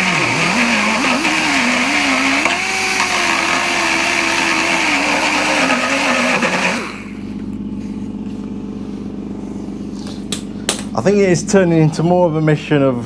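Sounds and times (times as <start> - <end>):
power tool grinding metal: 0.0 - 7.2.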